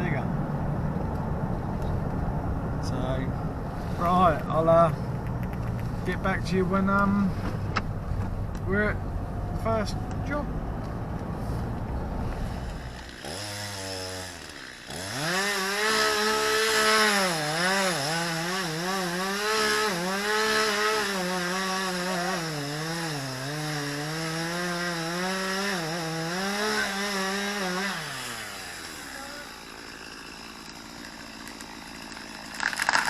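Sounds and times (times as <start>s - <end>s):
two-stroke chainsaw revving: 12.3s - 33.0s.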